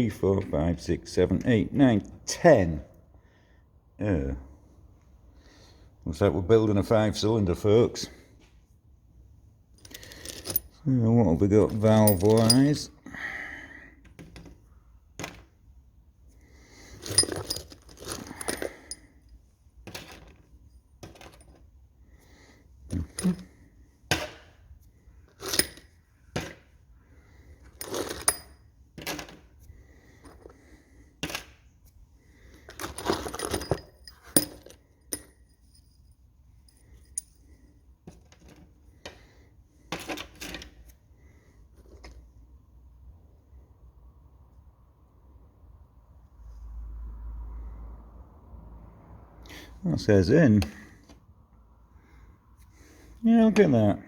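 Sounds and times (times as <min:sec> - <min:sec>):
metal parts clinking in box: 0:09.8 - 0:10.8, 0:11.7 - 0:12.8, 0:17.0 - 0:19.0, 0:22.9 - 0:23.5, 0:25.4 - 0:25.9, 0:27.7 - 0:29.2, 0:32.7 - 0:36.0.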